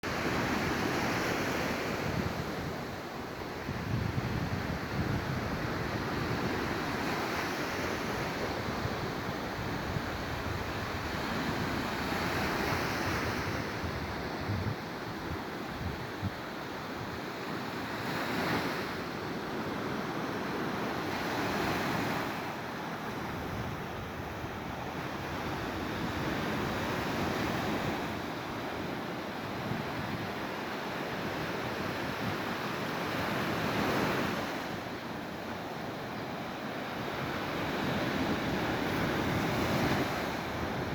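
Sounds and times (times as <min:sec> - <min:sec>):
waves washing onto shore: 0:00.0 - 0:40.9
wind rumbling on microphone: 0:00.1 - 0:17.2, 0:23.2 - 0:28.9, 0:37.0 - 0:40.9.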